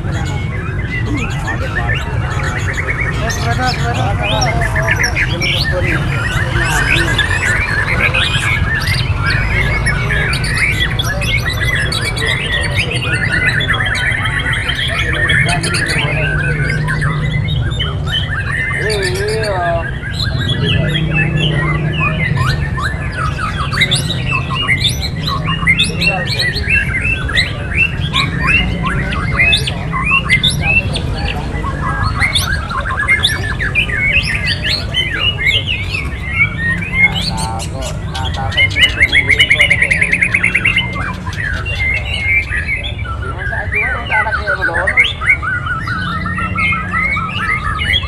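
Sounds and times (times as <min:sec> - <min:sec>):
songbirds chirping and whistling: 0:00.0 - 0:48.0.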